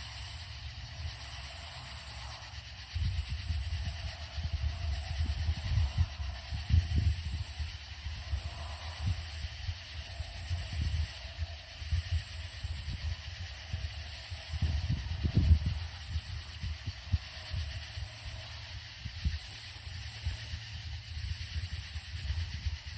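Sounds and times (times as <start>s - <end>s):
cicadas buzzing: 0.0s - 22.9s.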